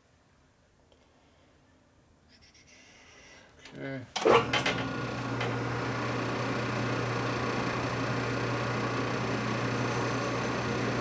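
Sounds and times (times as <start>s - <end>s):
metal lathe motor hum: 4.2s - 11.0s.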